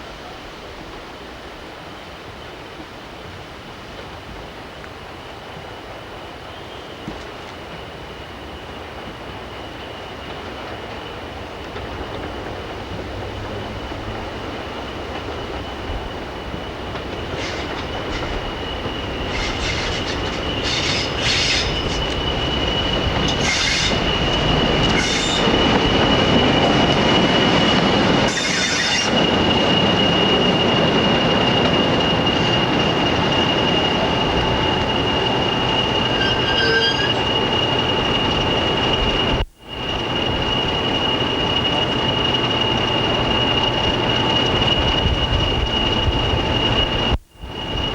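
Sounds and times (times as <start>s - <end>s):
train running: 0.0s - 47.9s
high wheel squeal: 11.9s - 47.9s.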